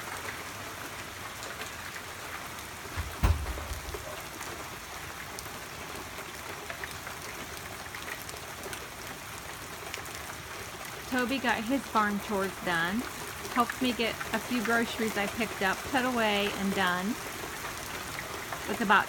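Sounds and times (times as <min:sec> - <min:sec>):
heavy rain pouring: 0:00.0 - 0:19.0
low thump: 0:03.0 - 0:04.2.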